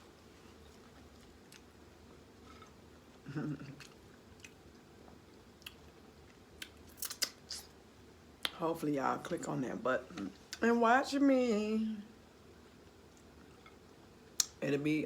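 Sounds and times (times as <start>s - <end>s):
chewing and mouth smacking: 0.6s - 2.8s, 3.5s - 7.6s
person humming: 3.3s - 3.8s.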